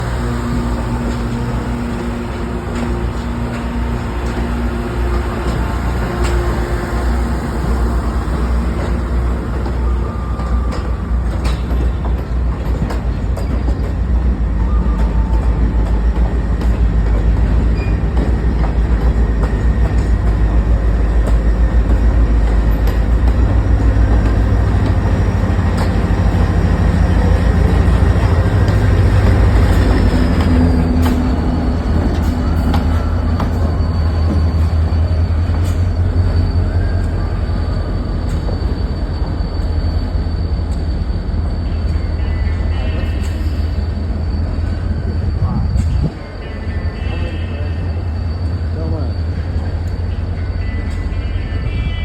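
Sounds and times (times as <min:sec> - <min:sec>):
train rumbling on rails: 0:00.0 - 0:52.0
high squeal: 0:19.5 - 0:52.0
faint thin squeal: 0:32.2 - 0:52.0.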